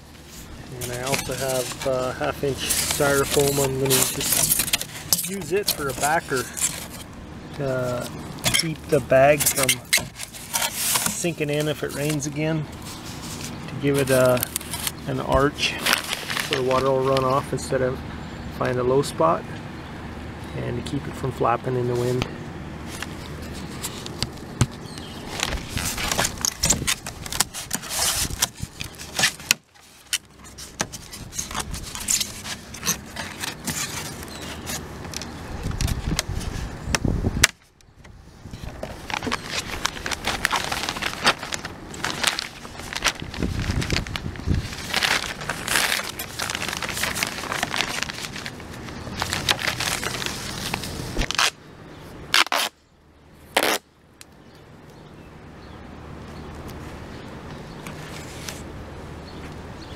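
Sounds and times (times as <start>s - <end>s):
plastic bag crinkling: 0.2s - 7.1s, 7.9s - 16.9s, 23.0s - 34.9s, 38.8s - 51.6s
sharp clicks and scrapes: 8.0s - 12.2s, 22.9s - 36.6s.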